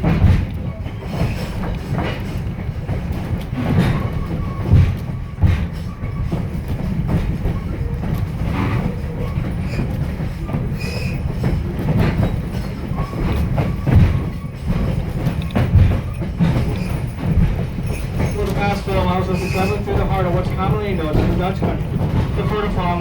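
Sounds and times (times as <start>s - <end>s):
knocks and clanks: 0.0s - 23.0s
train wheels rumbling on rail: 0.0s - 23.0s.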